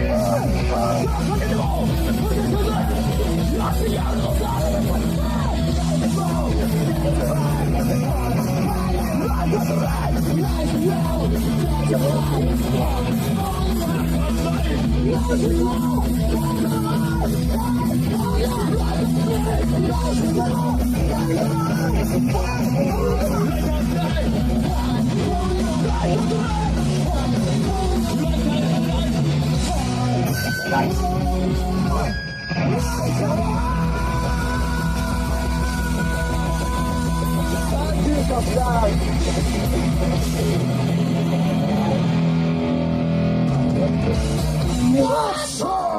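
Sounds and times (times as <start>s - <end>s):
distorted electric guitar chords: 0.0s - 45.9s
punk rock band playing live: 0.0s - 45.9s.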